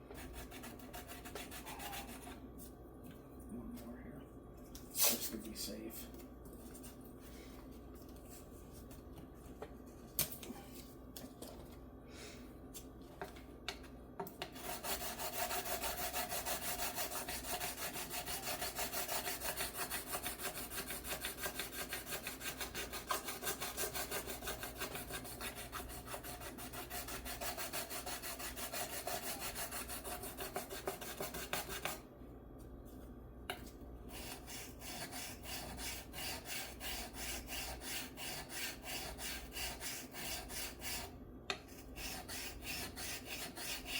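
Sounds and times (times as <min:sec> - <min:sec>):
metal file rubbing over guitar frets: 0:14.6 - 0:32.0, 0:34.1 - 0:41.1.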